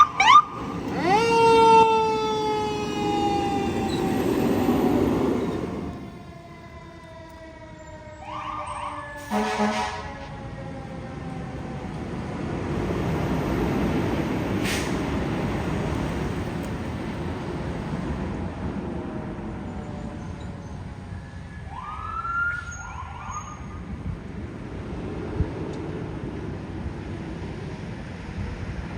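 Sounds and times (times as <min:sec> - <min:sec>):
short rising siren tones: 0:00.0 - 0:06.8
fire engine passing: 0:00.0 - 0:28.9.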